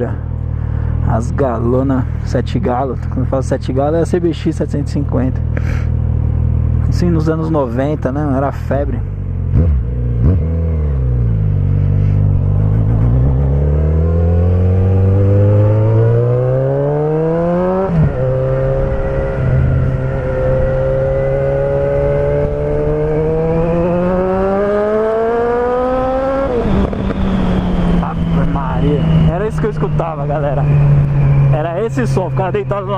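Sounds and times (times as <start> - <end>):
motorcycle engine accelerating hard: 9.1 - 32.9.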